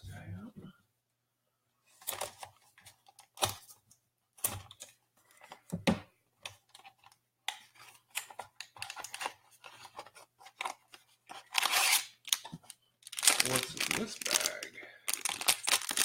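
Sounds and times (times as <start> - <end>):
hands handling plastic packaging: 6.4 - 16.0.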